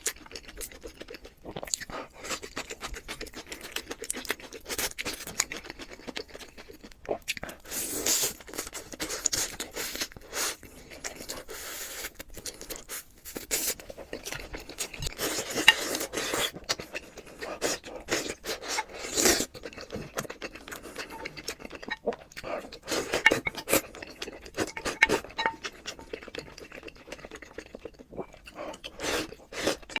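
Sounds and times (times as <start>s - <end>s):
utensil scraping a dish: 20.9s - 22.0s, 22.8s - 26.1s.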